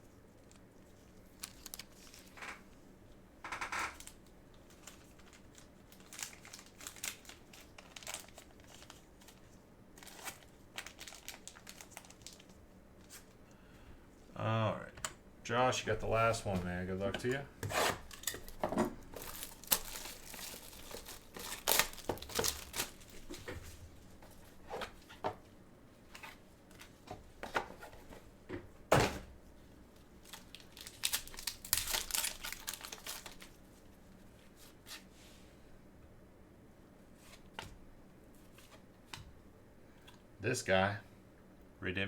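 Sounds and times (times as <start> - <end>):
packaging crinkling and tearing: 0.4 - 2.6, 4.0 - 13.4, 18.0 - 23.4, 30.0 - 33.6.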